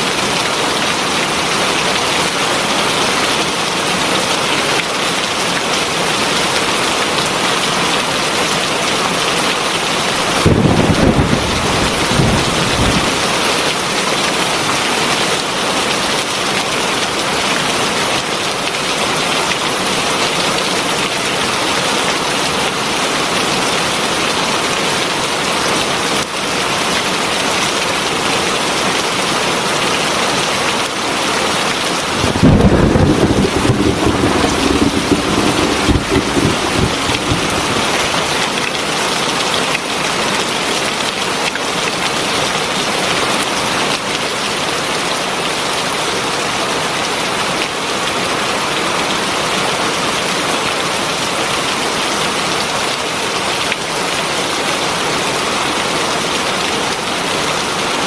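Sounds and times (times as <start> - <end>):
heavy rain falling: 0.0 - 44.0
thunder clap rumbling: 10.2 - 13.6, 32.0 - 38.8.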